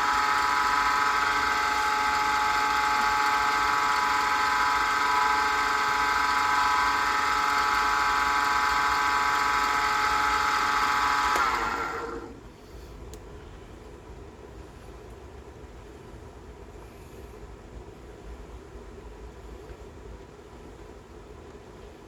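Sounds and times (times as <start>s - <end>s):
lathe whining and spinning down: 0.0s - 12.4s.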